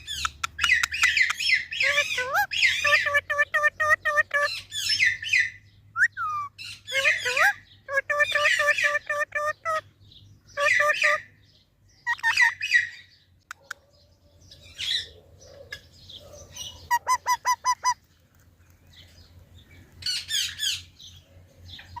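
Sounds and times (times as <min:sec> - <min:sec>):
parrot squawking and chirping: 0:00.0 - 0:09.9, 0:10.5 - 0:11.4, 0:12.0 - 0:13.8, 0:14.5 - 0:18.1, 0:20.0 - 0:21.0.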